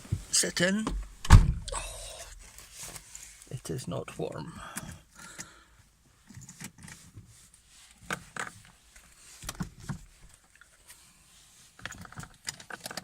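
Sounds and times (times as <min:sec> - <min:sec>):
clicks knocks and rustles in car: 0:08.0 - 0:10.7, 0:11.8 - 0:13.0.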